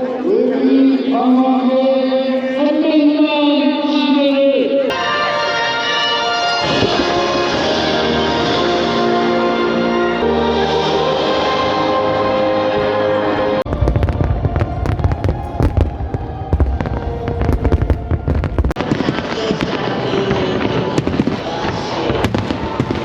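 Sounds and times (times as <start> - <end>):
music: 4.9 - 23.0
deep fireworks rumble: 13.7 - 23.0
fireworks bangs and crackles: 13.7 - 23.0.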